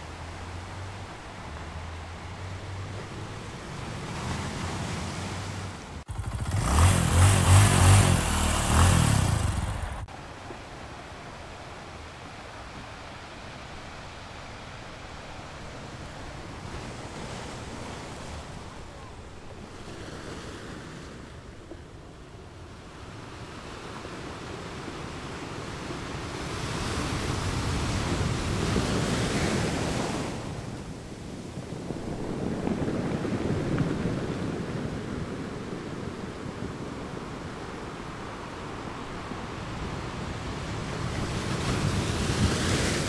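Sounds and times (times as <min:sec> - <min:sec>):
wind buffeting microphone: 0:26.7 - 0:38.2.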